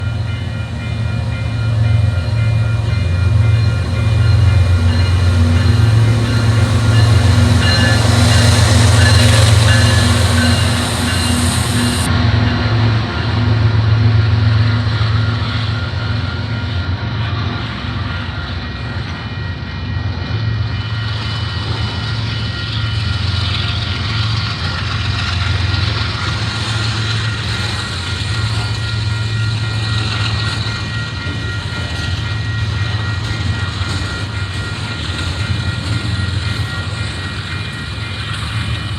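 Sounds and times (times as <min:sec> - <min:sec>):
diesel locomotive engine drone: 0:00.0 - 0:38.9
thin high tones: 0:02.9 - 0:12.1.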